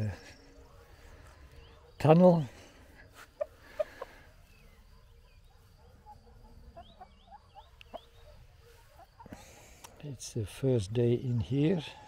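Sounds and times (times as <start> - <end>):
faint bird chirps: 0.0 - 10.2.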